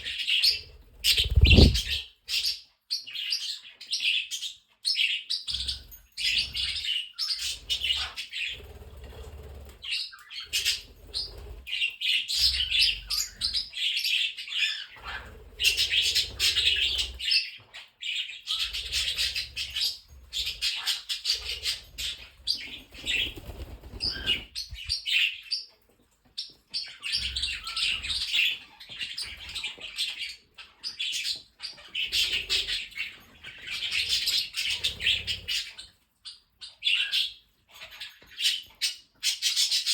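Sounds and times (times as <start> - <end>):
parrots chattering and chirping: 0.0 - 39.9
low thumps: 1.3 - 2.0.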